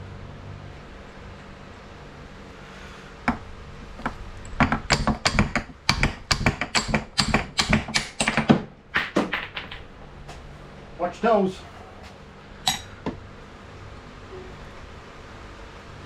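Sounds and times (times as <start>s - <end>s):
hammer striking metal: 11.6s - 13.2s.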